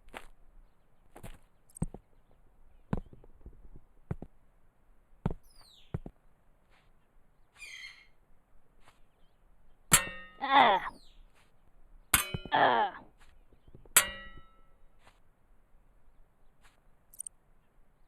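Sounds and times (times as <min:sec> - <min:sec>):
birds chirping: 0:00.6 - 0:04.2, 0:05.2 - 0:14.0, 0:16.0 - 0:18.0.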